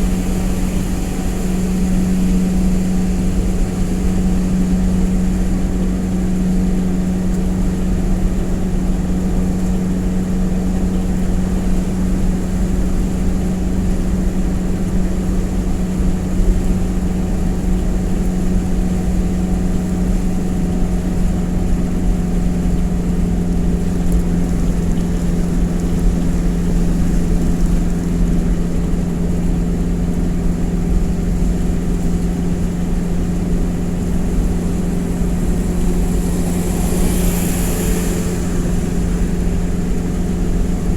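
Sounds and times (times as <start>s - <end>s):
truck engine idling: 23.5s - 40.9s.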